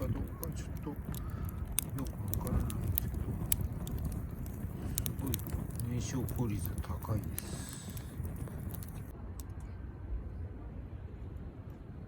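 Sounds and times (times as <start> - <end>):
fire burning with crackles: 0.0 - 9.2.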